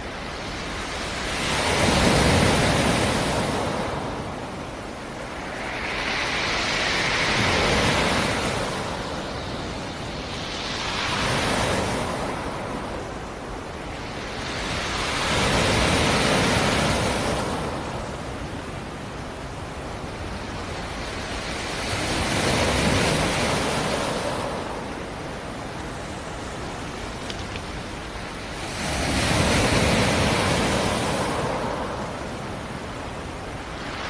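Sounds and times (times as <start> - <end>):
waves breaking on shore: 0.0 - 34.0.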